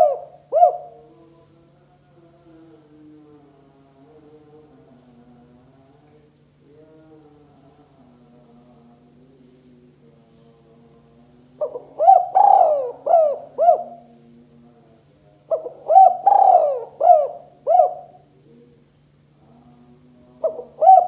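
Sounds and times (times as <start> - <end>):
dove cooing: 0.0 - 1.1, 11.6 - 14.2, 15.5 - 18.3, 20.4 - 21.0
faint steady hum: 0.0 - 21.0.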